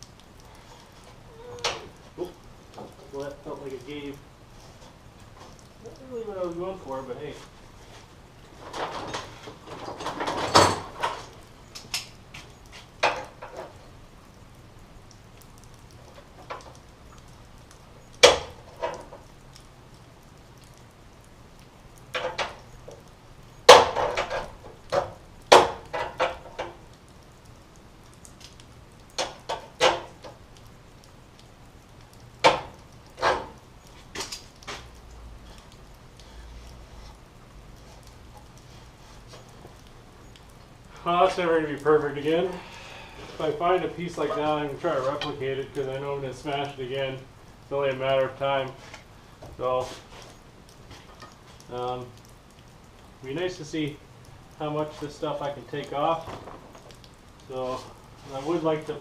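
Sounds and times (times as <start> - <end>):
metal knocks and clanks: 8.6 - 11.3.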